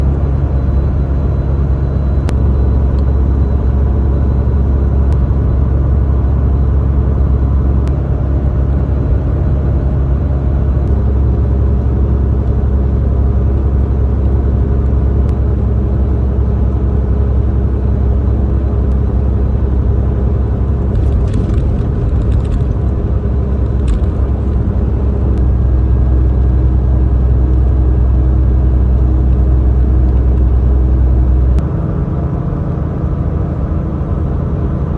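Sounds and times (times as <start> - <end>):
diesel truck engine drone: 0.0 - 34.9
short rattle: 20.9 - 26.0.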